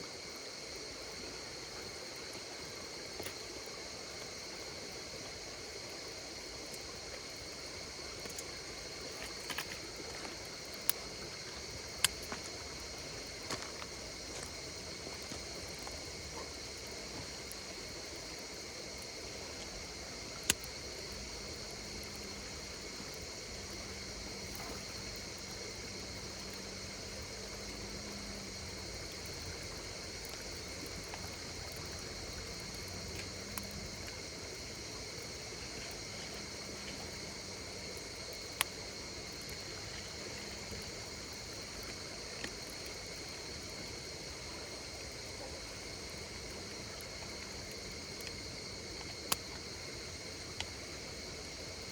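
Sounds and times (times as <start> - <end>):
night insects chirring: 0.0 - 51.9
campfire crackling and popping: 2.2 - 51.0.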